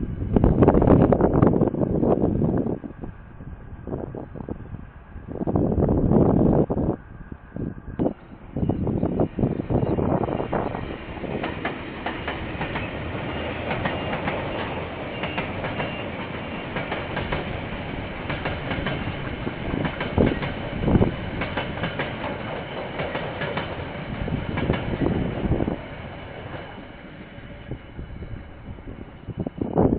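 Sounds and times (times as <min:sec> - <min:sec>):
train wagons rumbling: 0:00.0 - 0:29.9
wheels clacking over rail joints: 0:09.8 - 0:27.0.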